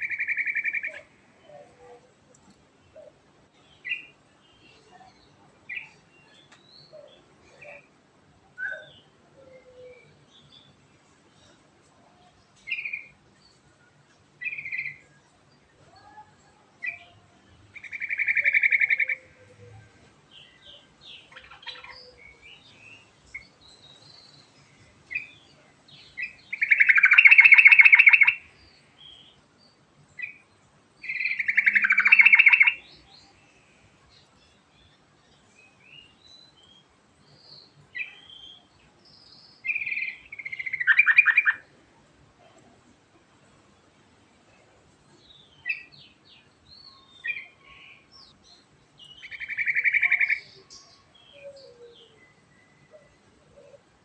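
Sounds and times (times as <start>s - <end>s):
bird chirps: 0.0s - 2.0s, 17.8s - 29.4s, 30.2s - 41.7s, 45.0s - 53.9s
bird singing rolling phrases: 0.0s - 54.0s.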